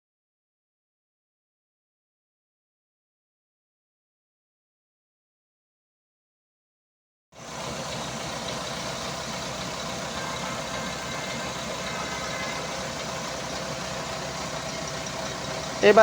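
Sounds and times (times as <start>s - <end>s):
diesel bus engine idling: 7.4s - 16.0s.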